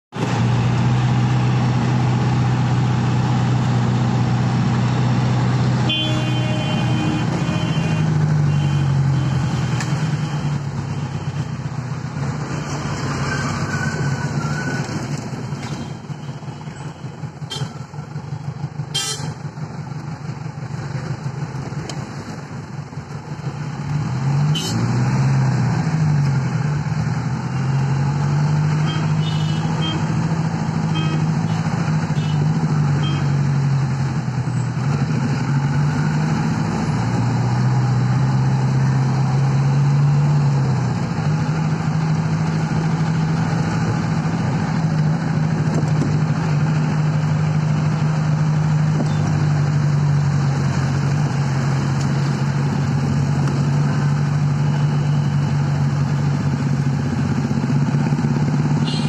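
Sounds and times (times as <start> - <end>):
car engine droning: 0.1 - 59.0
car horns honking: 5.8 - 11.5, 15.6 - 17.9, 18.9 - 19.4, 24.5 - 24.9, 28.8 - 30.2, 30.9 - 33.4, 58.8 - 59.0.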